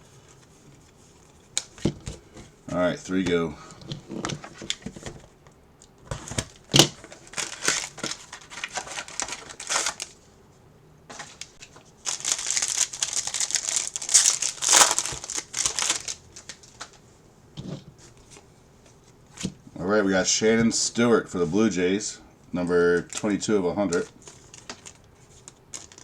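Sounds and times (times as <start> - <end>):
plastic wrapping crinkling: 6.4 - 10.2, 11.2 - 17.0, 23.0 - 26.0.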